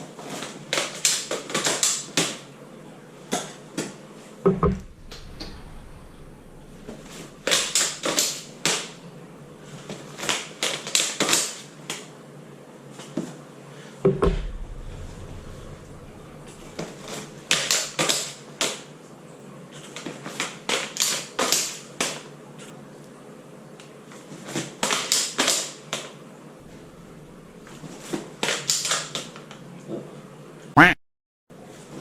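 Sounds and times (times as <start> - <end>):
dull thuds: 4.5 - 8.7, 14.1 - 17.4.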